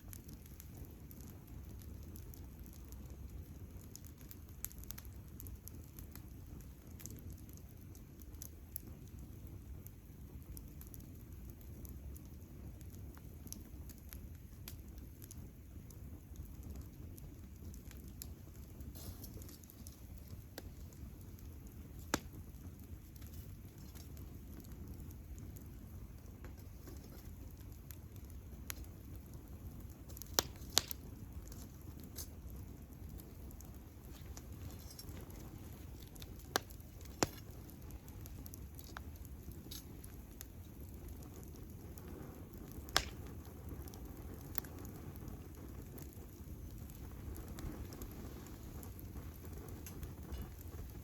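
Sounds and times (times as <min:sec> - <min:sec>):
wood campfire crackling: 0:00.0 - 0:51.0.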